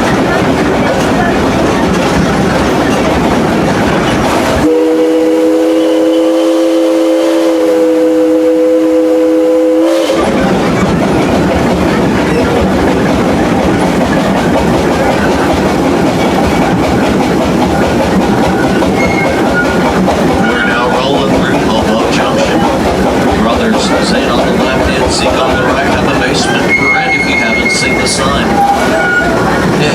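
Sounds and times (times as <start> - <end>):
train clickety-clack on track: 0.0 - 29.9
steam locomotive whistle chord: 4.6 - 10.3, 26.5 - 29.4.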